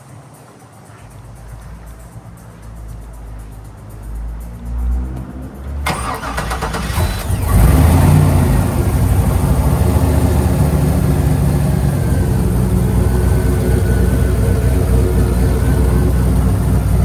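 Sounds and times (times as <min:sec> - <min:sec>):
car engine revving and idling: 0:02.9 - 0:17.0
starter cranking: 0:05.9 - 0:17.0.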